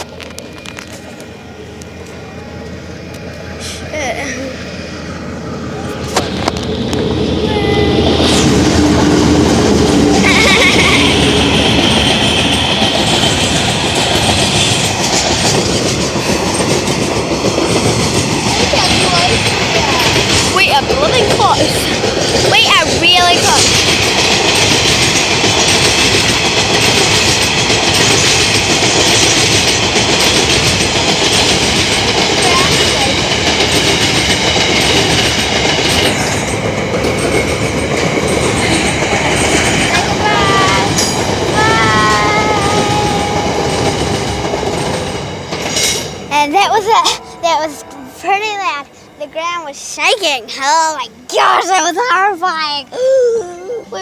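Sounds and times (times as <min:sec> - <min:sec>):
train wagons rumbling: 0:00.0 - 0:54.0
wheels clattering over rails: 0:08.6 - 0:50.9.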